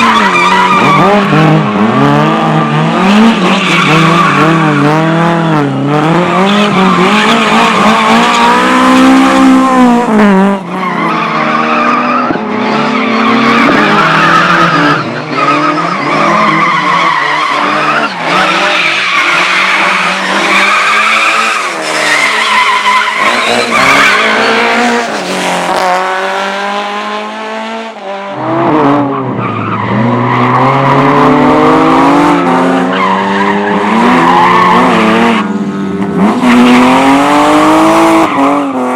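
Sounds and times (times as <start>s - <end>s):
car engine revving: 0.0s - 38.9s
tyres squealing: 13.1s - 25.0s.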